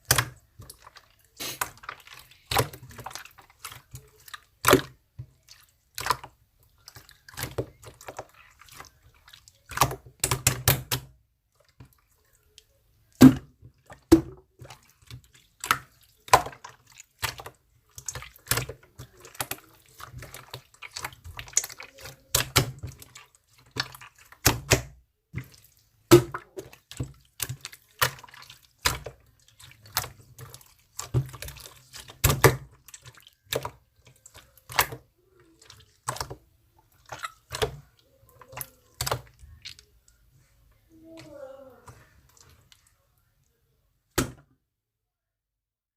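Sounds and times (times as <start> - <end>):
wet clicks and pops: 0.0 - 5.0.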